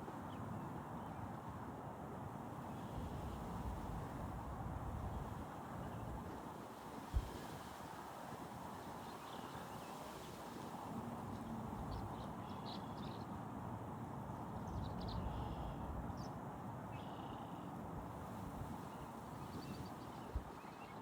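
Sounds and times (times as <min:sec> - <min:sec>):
wind rumble on microphone: 0:02.7 - 0:12.4, 0:17.9 - 0:21.0.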